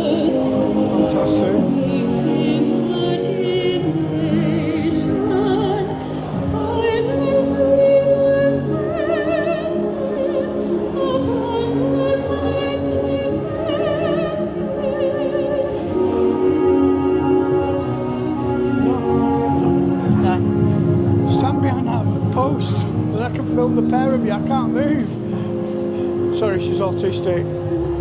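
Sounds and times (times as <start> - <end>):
woman singing opera: 0.0 - 20.5, 27.7 - 28.0
orchestral music: 0.0 - 28.0.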